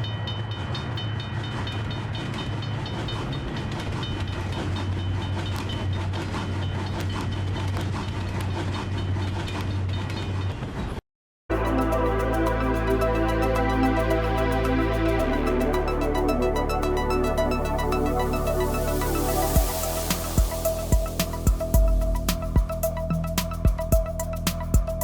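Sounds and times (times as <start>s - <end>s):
wheels clicking over rail joints: 0.0s - 10.7s.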